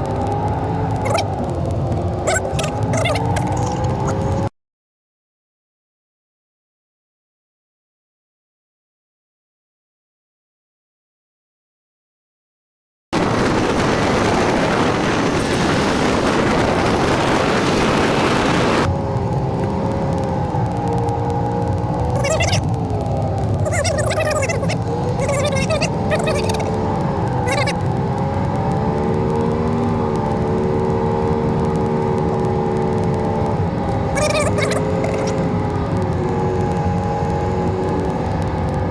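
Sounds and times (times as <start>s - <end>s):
wind and road noise: 0.0s - 4.5s, 13.2s - 38.9s.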